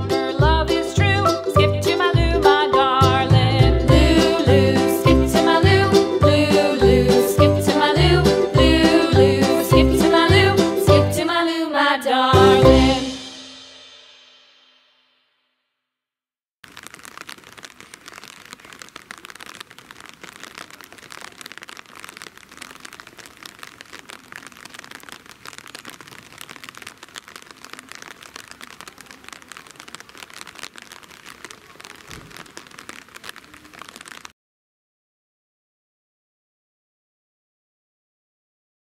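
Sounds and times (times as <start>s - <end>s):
rain pattering: 0.0s - 11.3s, 12.3s - 13.3s, 16.6s - 34.4s.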